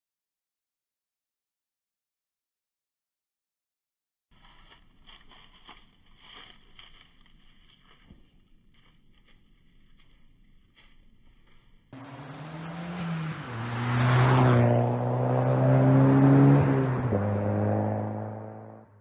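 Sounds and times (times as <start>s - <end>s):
car engine running hard: 12.0s - 18.8s.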